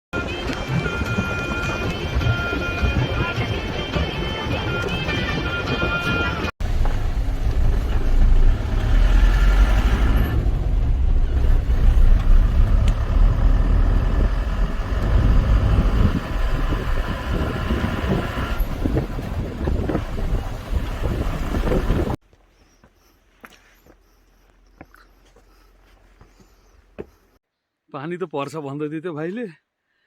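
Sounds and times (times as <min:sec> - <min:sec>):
vehicle engine rumbling: 0:06.6 - 0:22.2.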